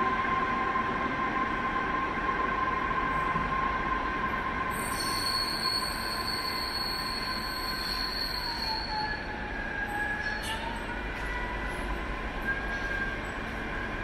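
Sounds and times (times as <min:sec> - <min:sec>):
low train rumble: 0:00.0 - 0:14.0
high-pitched train wheel squeal: 0:04.6 - 0:14.0.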